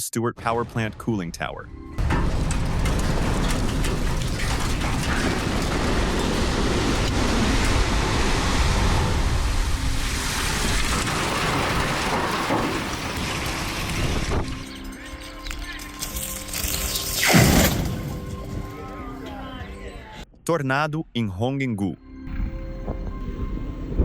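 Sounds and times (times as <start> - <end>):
heavy rumble of collapsing tower: 2.0 - 14.9
falling debris crackling: 2.0 - 19.3.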